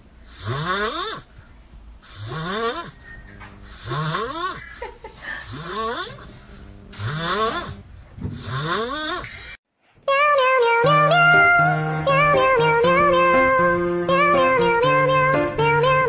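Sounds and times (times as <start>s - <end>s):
pet snoring wheezily: 0.3s - 1.3s, 2.0s - 4.7s, 5.4s - 6.3s, 6.9s - 9.3s.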